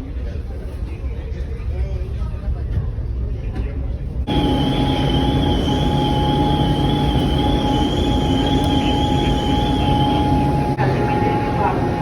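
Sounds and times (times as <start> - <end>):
constant whine: 4.3 - 12.0
faint wavering high whine: 4.3 - 12.0
vehicle running noise: 4.3 - 12.0.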